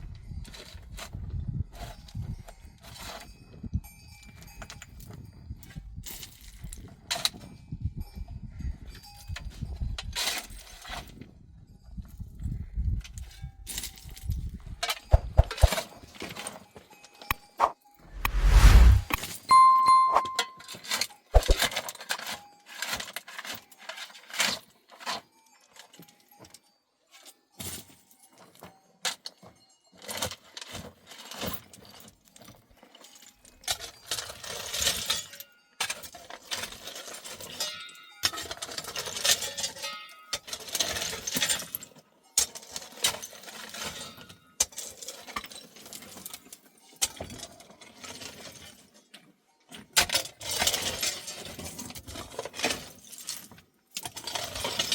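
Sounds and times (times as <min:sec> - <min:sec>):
brief scraping hisses: 0:17.6 - 0:19.2.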